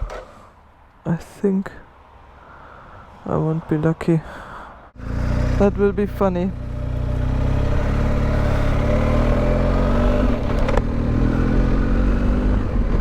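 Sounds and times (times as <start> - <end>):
motorcycle engine accelerating: 5.0 - 13.0
wind noise: 7.4 - 13.0.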